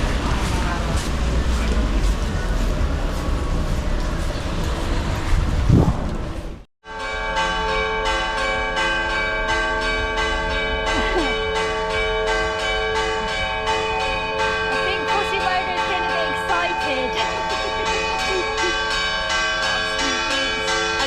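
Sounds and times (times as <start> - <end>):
church bells pealing: 6.8 - 21.0.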